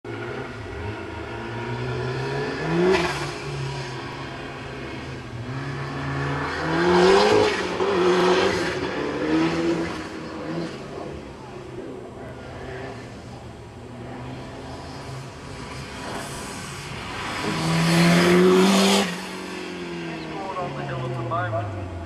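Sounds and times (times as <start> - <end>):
car engine accelerating hard: 0.1 - 22.0.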